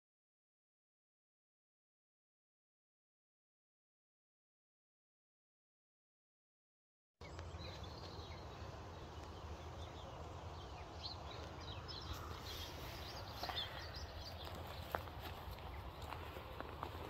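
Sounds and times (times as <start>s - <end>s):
small birds chirping: 7.2s - 17.0s.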